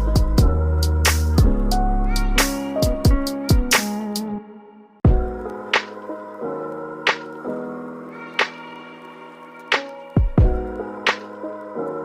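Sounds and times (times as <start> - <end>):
deep bass: 0.0 - 3.0
drum hits: 5.1 - 5.9, 10.2 - 11.2.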